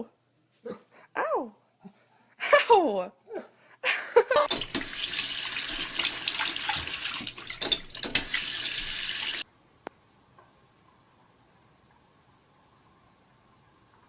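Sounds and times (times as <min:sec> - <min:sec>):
water running: 0:04.4 - 0:09.4.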